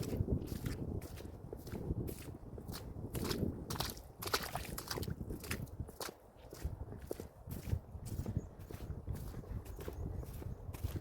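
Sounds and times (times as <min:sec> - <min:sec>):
crunching footsteps: 0:00.0 - 0:11.0.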